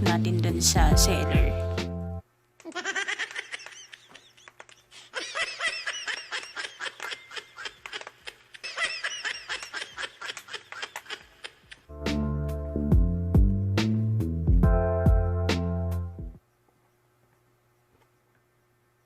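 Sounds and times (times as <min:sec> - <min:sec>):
sped-up squeaky giggling: 0:02.6 - 0:11.9.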